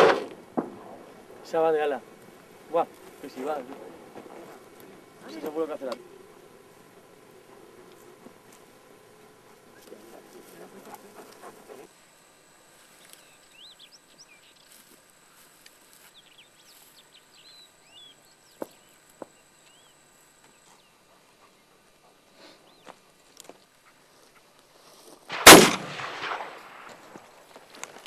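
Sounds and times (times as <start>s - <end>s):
rustling: 0.0s - 13.5s
small birds chirping: 12.9s - 15.0s, 15.7s - 23.1s.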